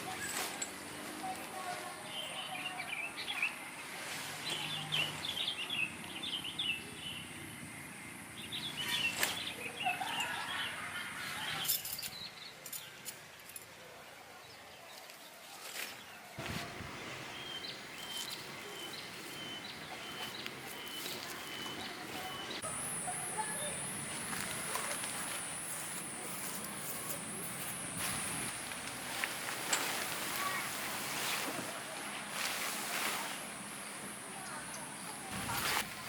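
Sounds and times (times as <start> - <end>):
outdoor ambience: 0.0 - 36.0
small birds chirping: 16.4 - 36.0.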